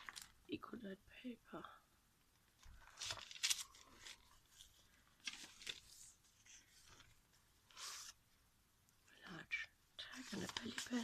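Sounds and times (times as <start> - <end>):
paper pages rustling: 0.0 - 0.4, 2.5 - 8.2, 10.0 - 11.0.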